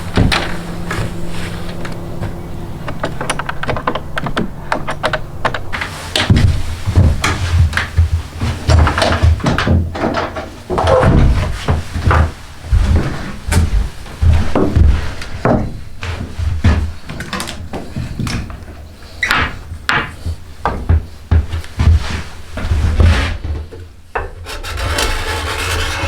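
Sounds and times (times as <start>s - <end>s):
wooden knocks and thumps: 0.1s - 15.8s
tools scraping wood: 24.2s - 26.0s.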